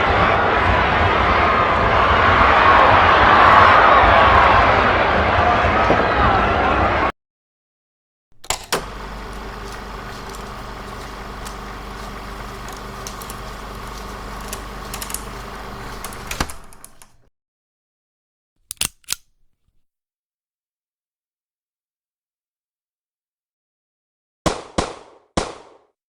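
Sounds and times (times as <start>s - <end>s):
steady mechanical hum: 8.4s - 17.2s
mechanical clicks: 8.4s - 17.3s, 18.6s - 19.8s.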